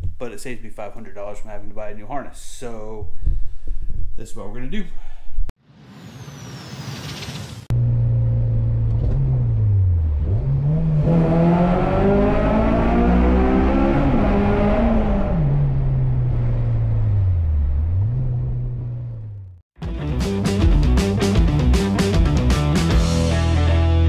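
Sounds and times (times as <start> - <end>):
car engine revving: 7.2 - 19.6.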